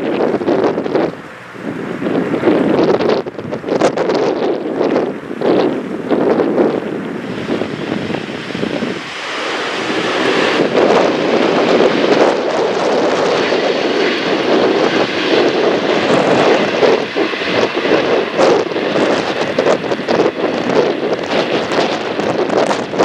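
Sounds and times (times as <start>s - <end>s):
jet engine roar: 0.0s - 23.0s
wind buffeting microphone: 0.0s - 23.0s.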